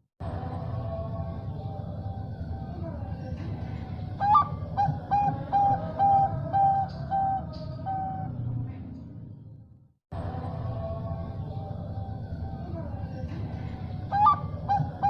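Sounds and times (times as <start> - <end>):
dove singing: 3.6 - 8.4, 13.6 - 15.0.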